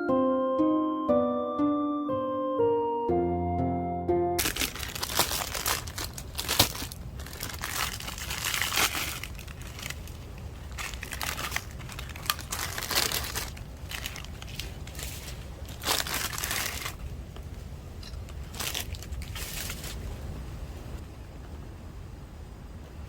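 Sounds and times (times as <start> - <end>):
background music: 0.0 - 4.4
plastic packaging crinkling: 4.4 - 17.2, 18.0 - 20.4.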